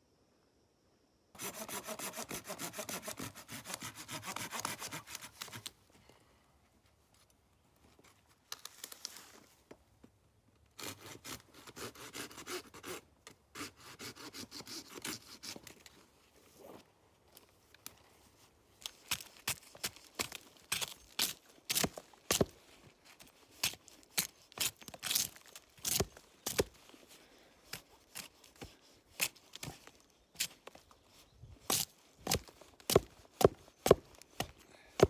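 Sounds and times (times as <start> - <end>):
hand saw cutting wood: 1.4 - 5.7, 10.8 - 15.7, 23.6 - 26.8, 31.7 - 35.0.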